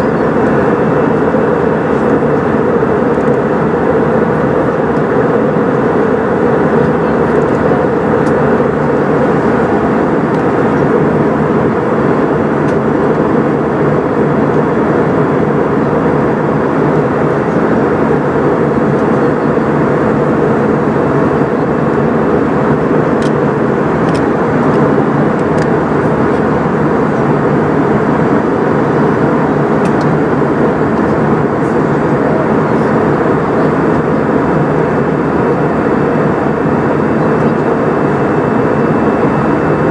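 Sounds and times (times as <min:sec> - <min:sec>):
airplane cabin engine noise: 0:00.0 - 0:39.9.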